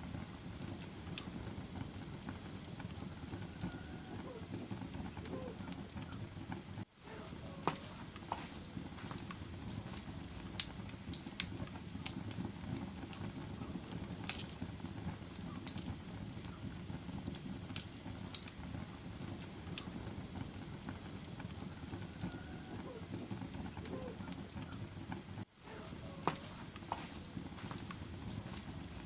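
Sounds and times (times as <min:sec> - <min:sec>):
fire crackling and popping: 0:00.0 - 0:29.0
low fire rumble: 0:00.0 - 0:29.0.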